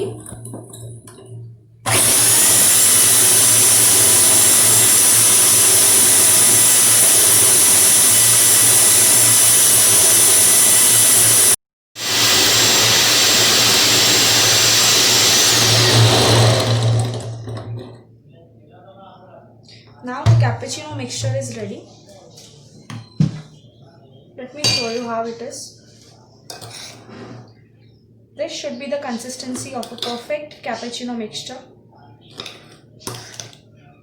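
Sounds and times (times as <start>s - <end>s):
electric hand beater whirring: 1.9s - 17.5s.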